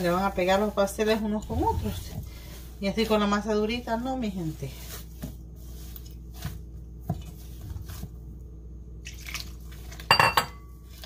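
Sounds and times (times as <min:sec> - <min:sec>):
wet dough squelching: 0:00.0 - 0:08.4.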